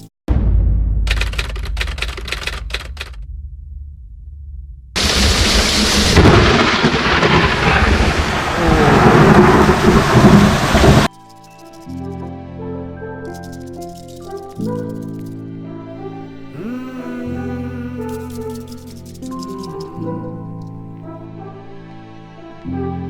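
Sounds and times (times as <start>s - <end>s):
heavy rain pouring: 5.0s - 11.1s
thunder rumbling: 5.0s - 11.1s.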